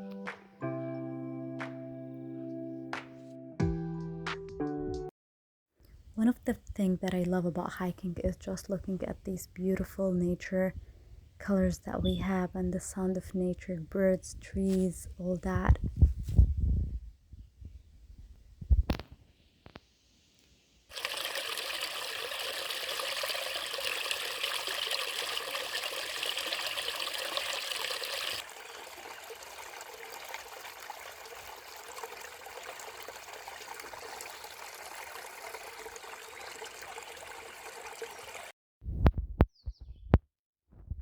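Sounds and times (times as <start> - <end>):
rushing water: 20.9 - 38.5.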